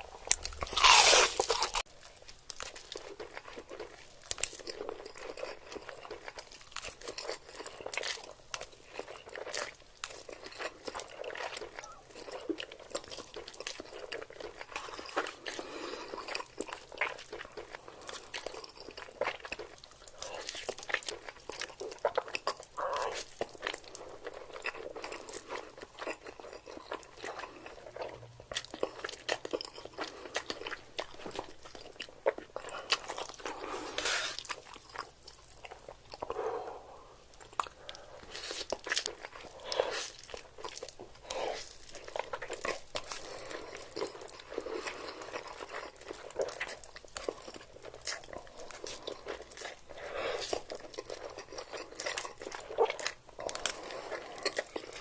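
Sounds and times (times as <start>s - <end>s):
crunchy bites: 0.0s - 3.8s
chewing: 0.0s - 55.0s.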